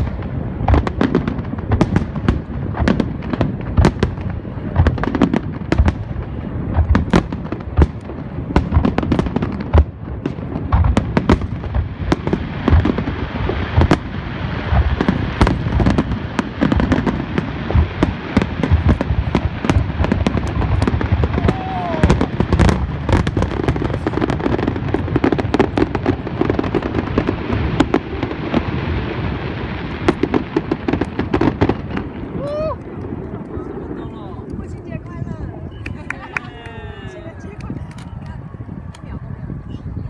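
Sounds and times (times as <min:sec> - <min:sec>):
fireworks bangs: 0:00.0 - 0:40.0.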